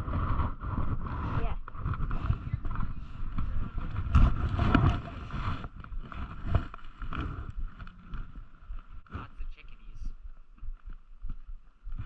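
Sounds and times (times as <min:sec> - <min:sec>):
camera housing rubbing and bumping: 0:00.1 - 0:08.2.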